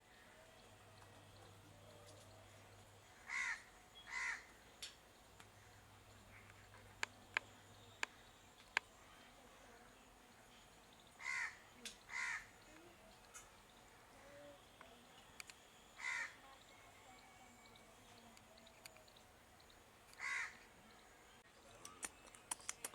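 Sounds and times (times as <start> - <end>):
harsh bird calls: 0.1 - 9.2, 11.0 - 14.7, 15.9 - 16.5, 20.1 - 22.8
sharp clicks: 21.8 - 22.9.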